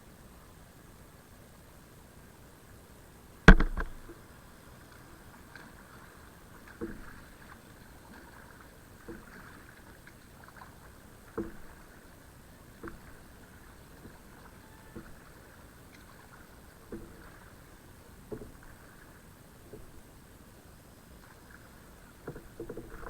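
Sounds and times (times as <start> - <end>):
paddle knocking hull: 3.5 - 4.2
paddle strokes splashing: 3.5 - 20.1, 21.1 - 23.0.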